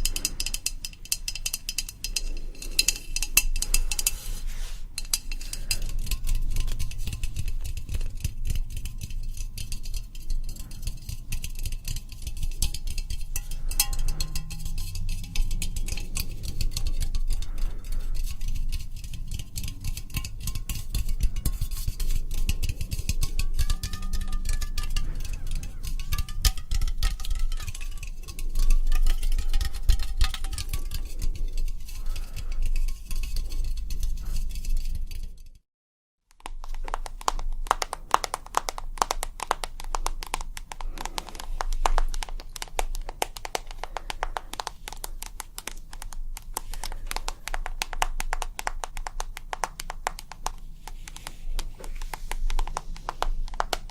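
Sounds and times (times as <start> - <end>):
light tapping on hard objects: 0.0 - 4.3, 4.9 - 34.4, 36.4 - 53.9
taps and clicks on hard objects: 36.3 - 53.9.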